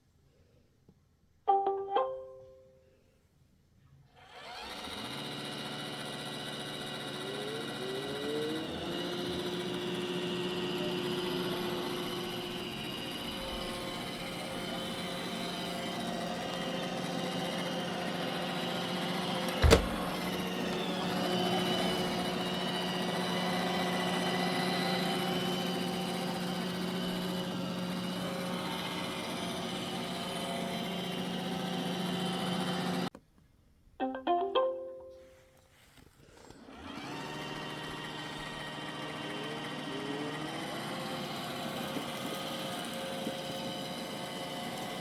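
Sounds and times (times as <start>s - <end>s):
robot vacuum humming: 4.2s - 33.1s, 36.2s - 45.0s.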